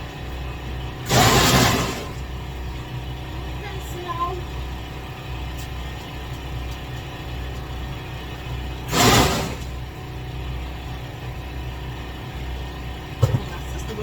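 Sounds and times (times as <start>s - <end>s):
low engine hum: 0.0s - 14.0s
short rushing noise: 1.1s - 2.3s, 8.9s - 9.8s.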